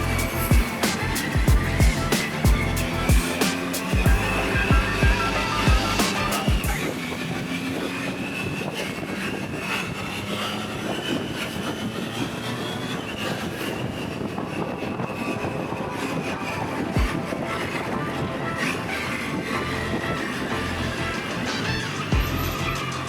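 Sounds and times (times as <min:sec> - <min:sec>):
motorcycle engine running: 0:00.0 - 0:06.8
wind noise: 0:00.0 - 0:23.0.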